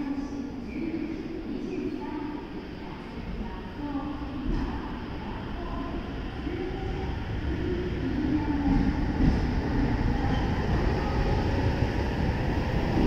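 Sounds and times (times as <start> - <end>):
train wheels rumbling: 4.4 - 13.0.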